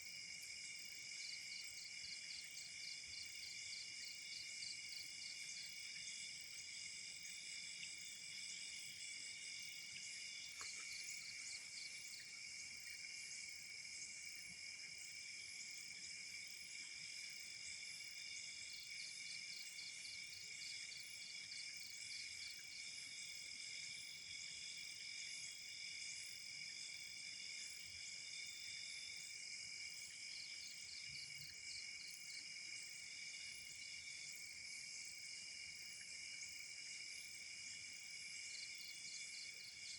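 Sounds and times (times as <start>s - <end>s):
crickets trilling: 0.2s - 22.7s.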